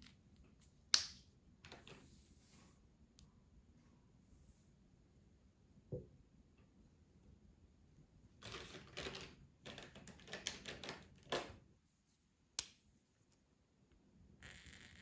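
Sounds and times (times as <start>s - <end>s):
colouring supplies clicking and rustling: 8.4s - 11.6s.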